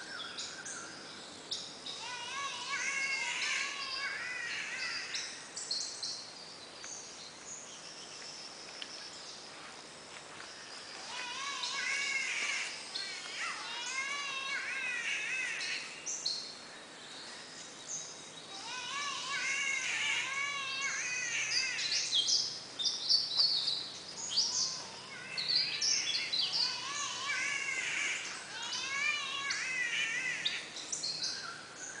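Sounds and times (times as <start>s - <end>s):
birds warbling: 0.0s - 9.4s, 10.4s - 32.0s
high chirps and squeaky calls: 1.9s - 6.1s, 10.9s - 16.4s, 18.5s - 32.0s.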